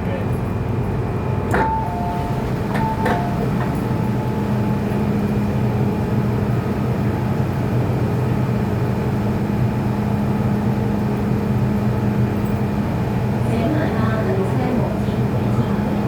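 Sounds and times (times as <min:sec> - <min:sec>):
train wheels rumbling on rail: 0:00.0 - 0:16.0
traction motor hum: 0:01.2 - 0:16.0.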